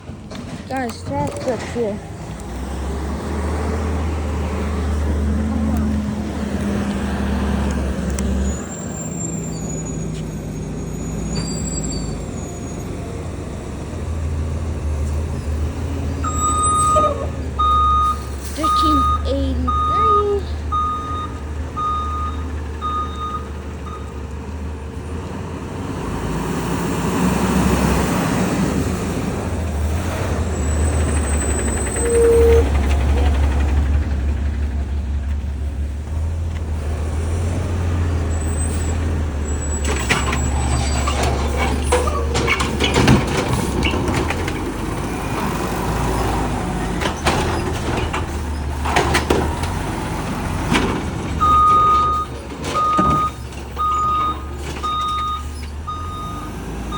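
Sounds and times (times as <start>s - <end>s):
metal clanks and bangs: 0.0s - 2.1s, 39.6s - 45.6s, 46.8s - 55.8s
diesel engine running: 0.0s - 56.9s
reversing beeper: 16.2s - 24.1s, 32.0s - 32.8s.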